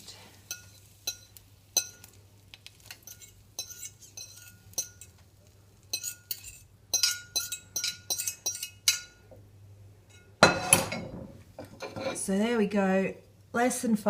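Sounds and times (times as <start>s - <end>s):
cutlery clinking against dish: 3.0s - 5.2s, 5.9s - 9.2s.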